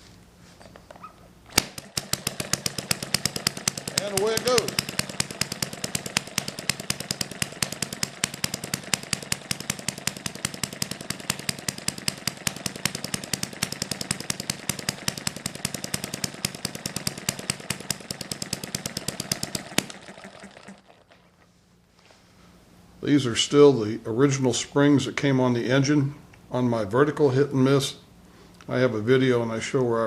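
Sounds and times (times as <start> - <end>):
low mechanical hum: 0.0 - 30.0
small engine exhaust pops: 0.9 - 21.5.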